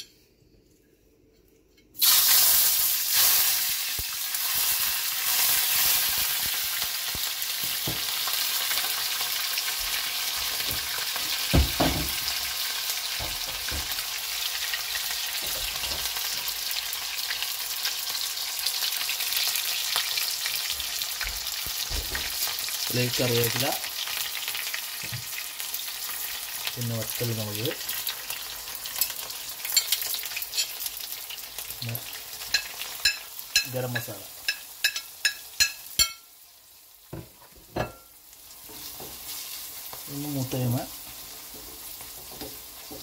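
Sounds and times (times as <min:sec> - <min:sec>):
shallots sizzling in hot oil: 0:02.0 - 0:43.0
knock: 0:11.5 - 0:12.2.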